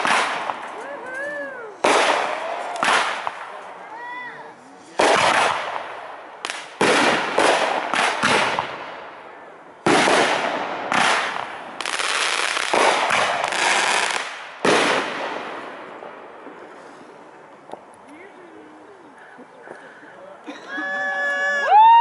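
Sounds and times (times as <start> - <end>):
fireworks bursting: 0.0 - 3.7, 4.9 - 17.4.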